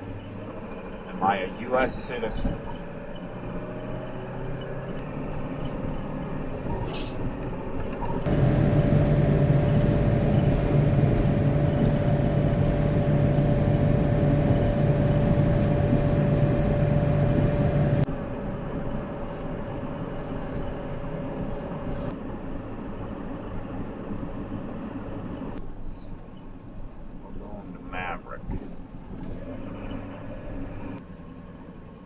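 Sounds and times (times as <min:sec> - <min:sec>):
truck engine and road noise: 0:08.3 - 0:18.1.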